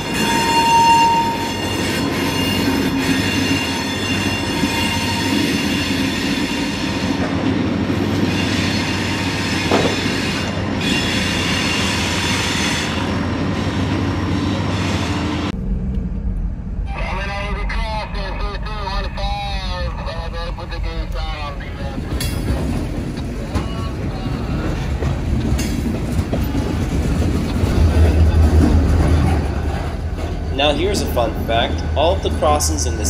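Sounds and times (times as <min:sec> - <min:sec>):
train wheels squealing: 0:00.0 - 0:07.2, 0:08.0 - 0:13.1
freight train rumbling: 0:00.0 - 0:33.0.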